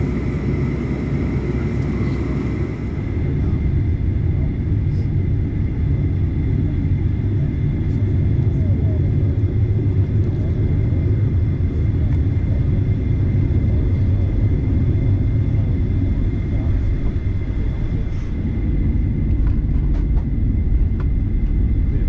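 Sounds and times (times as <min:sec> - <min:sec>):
steady high whine: 0:00.0 - 0:03.4
jet engines idling rumble: 0:00.0 - 0:22.0.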